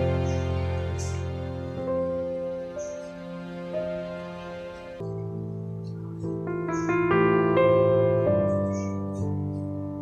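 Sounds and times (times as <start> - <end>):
slow piano music: 0.0 - 10.0.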